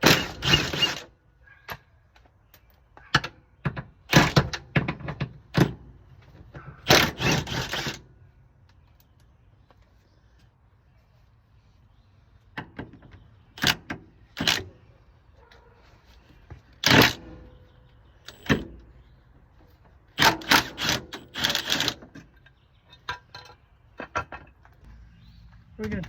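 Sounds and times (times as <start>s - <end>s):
hand tools clicking on bolts: 18.3s - 18.7s, 20.2s - 24.3s.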